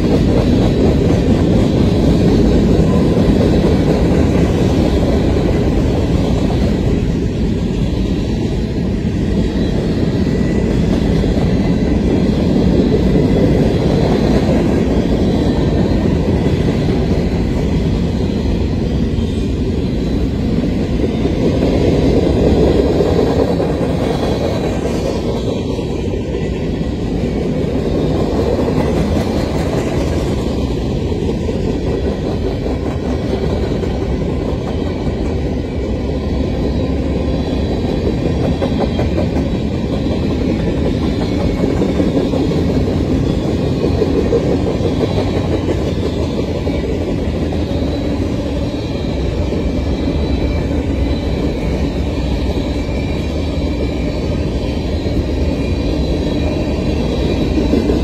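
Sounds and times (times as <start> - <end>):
steel wheels on rails: 0.0 - 58.0.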